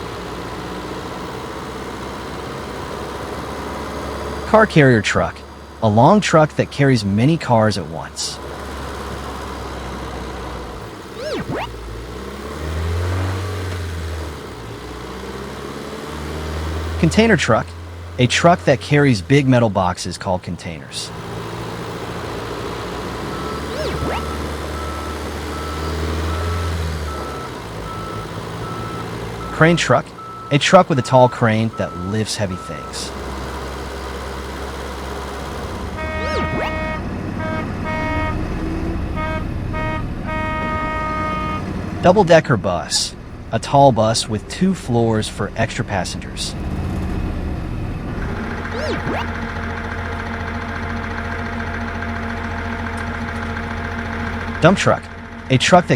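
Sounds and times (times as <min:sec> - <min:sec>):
truck engine rumbling: 0:00.0 - 0:55.9
rising and falling whistle: 0:11.2 - 0:11.8, 0:23.4 - 0:26.0, 0:36.0 - 0:38.4, 0:48.6 - 0:49.4
truck horn toots: 0:35.8 - 0:41.9.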